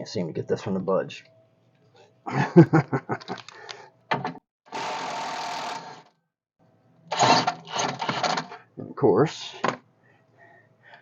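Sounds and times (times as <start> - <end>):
power wrench bursts: 4.7 - 6.1.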